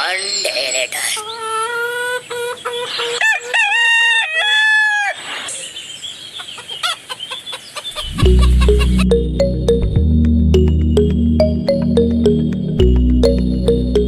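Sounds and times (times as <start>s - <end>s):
rooster crowing: 3.1s - 5.3s.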